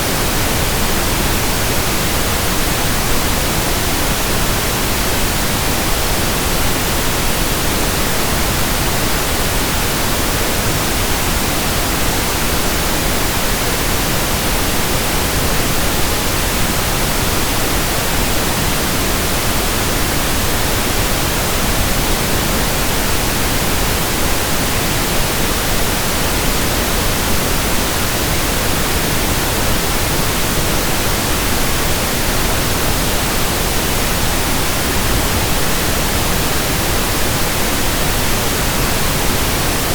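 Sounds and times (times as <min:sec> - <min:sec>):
steady pink noise: 0:00.0 - 0:39.9.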